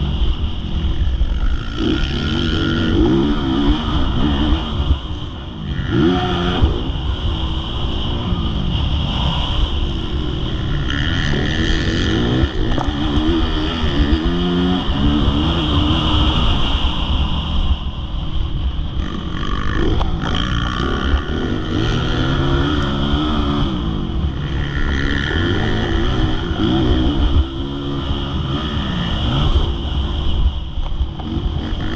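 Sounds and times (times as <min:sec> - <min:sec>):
motocross bike engine revving: 0:00.0 - 0:31.9.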